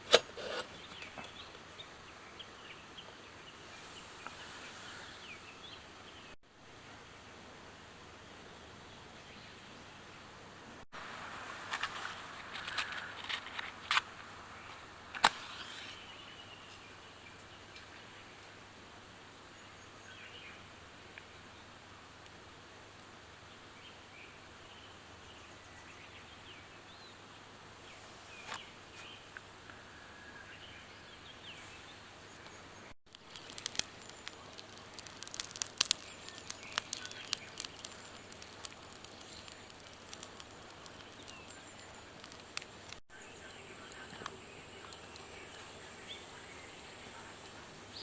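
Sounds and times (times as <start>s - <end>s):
bird chirps: 30.2s - 48.0s
wood fire crackling: 32.2s - 48.0s.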